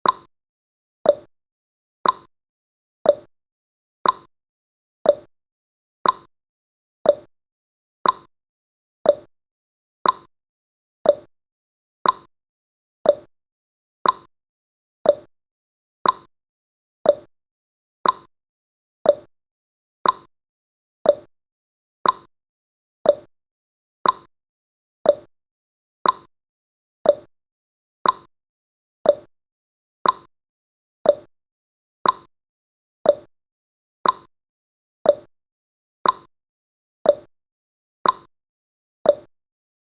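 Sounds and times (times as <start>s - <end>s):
countdown timer ticking: 7.1s - 7.3s, 9.1s - 9.3s, 11.1s - 11.3s, 13.1s - 13.3s, 15.1s - 15.3s, 17.1s - 17.3s, 19.1s - 19.3s, 21.1s - 21.3s, 23.1s - 23.3s, 24.0s - 24.3s, 25.1s - 25.3s, 26.0s - 26.3s, 27.0s - 27.3s, 28.0s - 28.3s, 29.1s - 29.3s, 30.0s - 30.3s, 31.1s - 31.3s, 32.0s - 32.3s, 33.1s - 33.3s, 34.0s - 34.3s, 35.1s - 35.3s, 36.0s - 36.3s, 37.1s - 37.3s, 38.0s - 38.3s, 39.1s - 39.3s.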